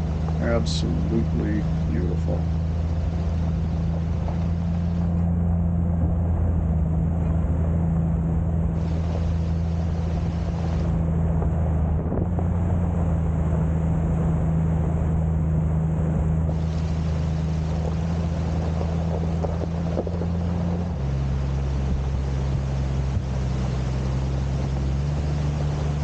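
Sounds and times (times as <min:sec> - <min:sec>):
car engine drone: 0:00.0 - 0:26.0
road noise: 0:00.0 - 0:26.0.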